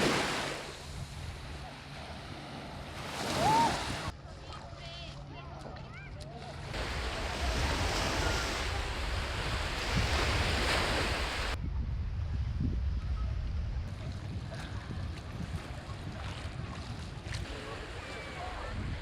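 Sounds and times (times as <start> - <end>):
wind rumbling on microphone: 0.0 - 2.1, 6.7 - 19.0
sea waves washing onto beach: 0.0 - 4.1, 6.6 - 11.6, 13.9 - 19.0.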